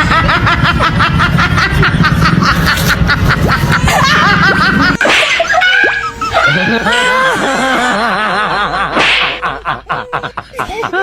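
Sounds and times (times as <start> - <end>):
high-pitched snickering laughter: 0.0 - 11.0.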